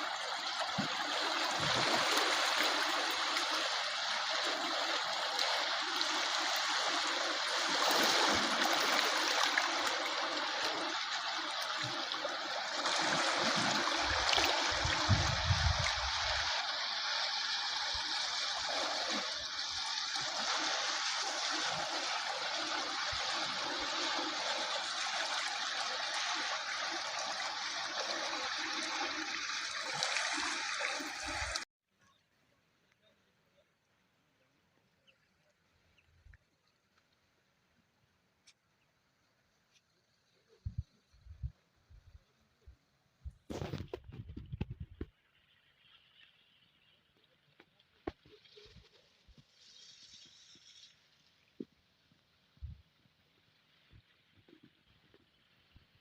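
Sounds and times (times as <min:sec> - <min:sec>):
rushing water: 0:00.0 - 0:31.7, 0:43.5 - 0:52.5.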